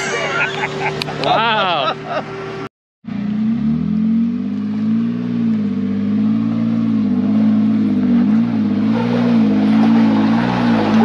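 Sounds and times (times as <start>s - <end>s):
engine revving on rock climb: 3.5s - 11.0s.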